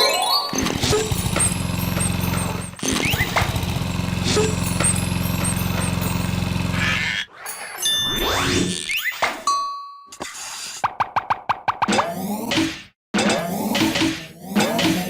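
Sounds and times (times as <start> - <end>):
engine-like drone with low buzz: 0.8 - 7.1.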